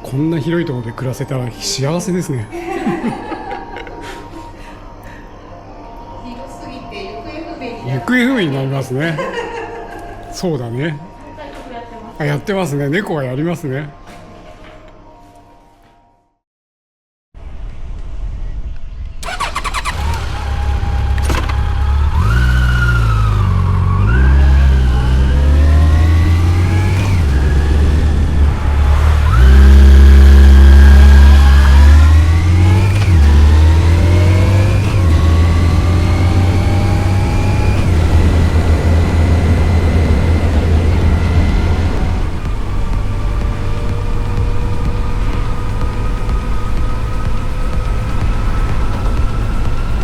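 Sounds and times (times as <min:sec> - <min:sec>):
wind and road noise: 0:17.4 - 0:50.0
motorcycle engine accelerating: 0:19.2 - 0:50.0.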